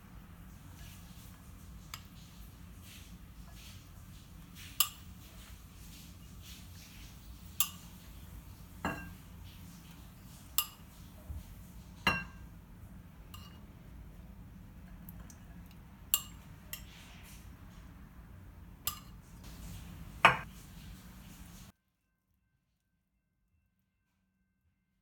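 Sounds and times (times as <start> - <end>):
utensils clinking against dishes: 4.6 - 5.4, 7.3 - 8.1, 8.8 - 9.3, 10.3 - 11.0, 13.4 - 13.6, 16.1 - 17.4, 18.9 - 20.5.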